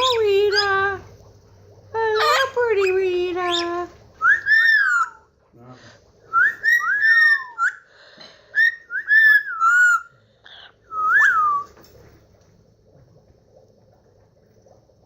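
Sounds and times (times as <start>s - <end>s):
parrot whistling: 2.2s - 5.2s, 6.3s - 7.9s, 8.6s - 10.1s, 10.9s - 11.7s.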